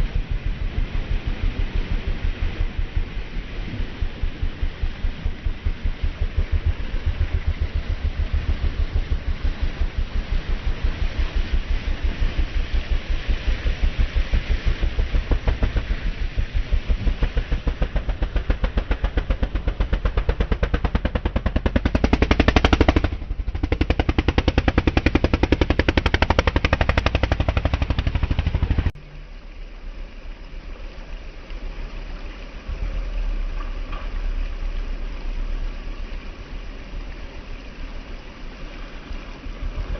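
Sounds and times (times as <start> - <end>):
racing engine with hard exhaust beat: 0.0 - 29.1.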